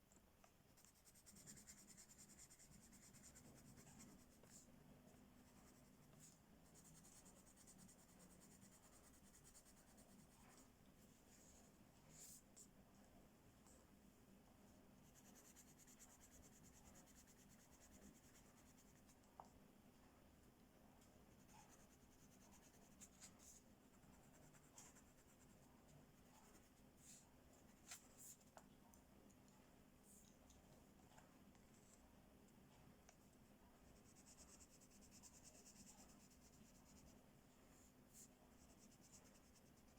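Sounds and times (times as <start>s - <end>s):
coloring tool scratching on paper: 0.8s - 4.6s, 5.4s - 10.6s, 15.0s - 19.1s, 21.4s - 25.6s, 38.1s - 39.9s.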